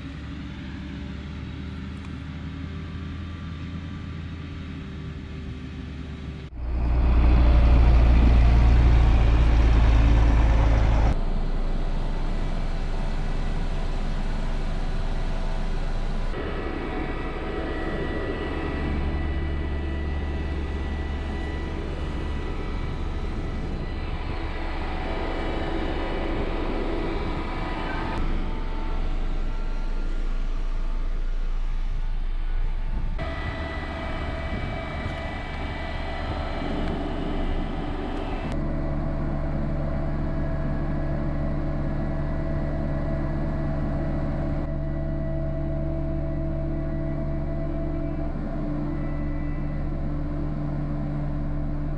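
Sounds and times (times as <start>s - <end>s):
heavy farm machinery engines: 0.0s - 51.9s.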